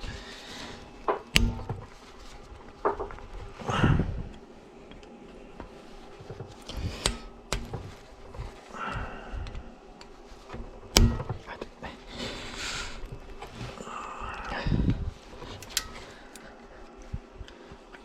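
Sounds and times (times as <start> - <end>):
soft rustling: 0.0 - 18.0
sharp knocks and clicks: 1.1 - 1.9, 6.6 - 7.9, 10.9 - 11.5.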